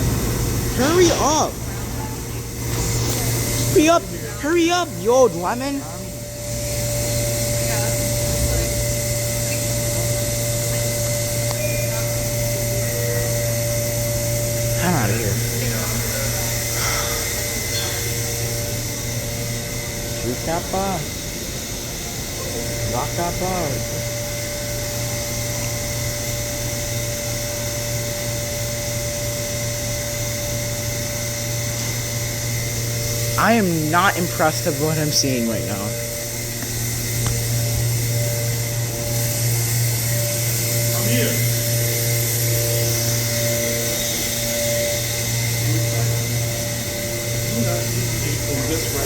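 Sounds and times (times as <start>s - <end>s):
subway train rushing: 0.0s - 5.0s
subway train hum and whine: 0.0s - 49.0s
steady high tone: 0.6s - 1.8s, 2.4s - 49.0s.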